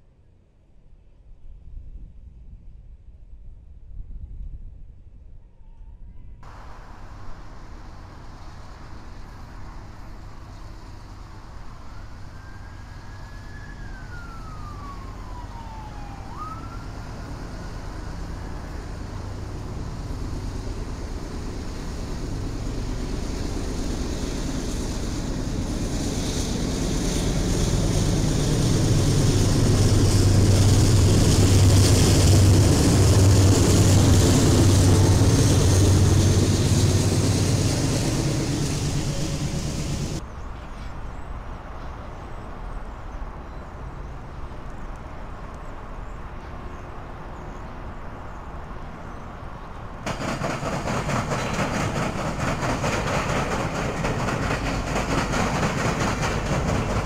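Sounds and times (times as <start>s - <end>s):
locomotive engine drone: 6.5s - 57.0s
faint siren wailing: 11.6s - 19.4s.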